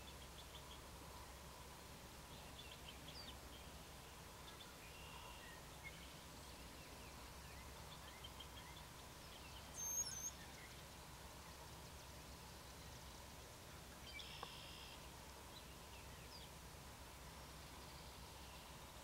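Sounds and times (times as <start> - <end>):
birds chirping: 2.3 - 11.6.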